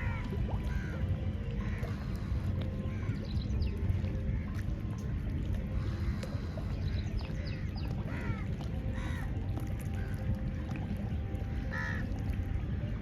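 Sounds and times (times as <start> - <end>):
steady low rumble: 0.0 - 13.0
birds chirping: 1.4 - 9.4.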